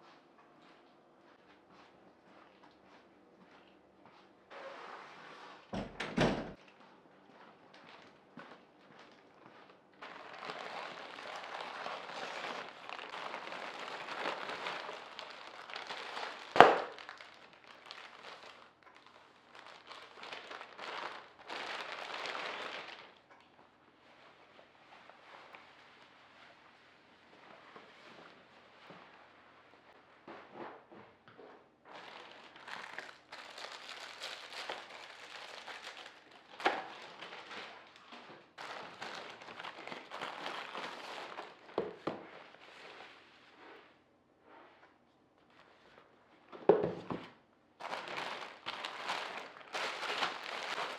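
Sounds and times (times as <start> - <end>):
packaging crinkling and rustling: 10.0 - 23.3, 31.9 - 43.0, 47.8 - 50.9.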